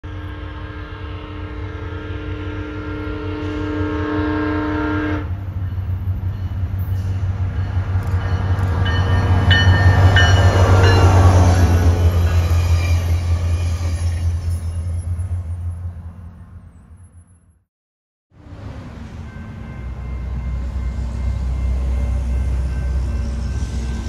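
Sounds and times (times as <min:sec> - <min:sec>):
train horn: 0:00.0 - 0:05.5
train rumble: 0:00.1 - 0:17.3, 0:18.4 - 0:24.0.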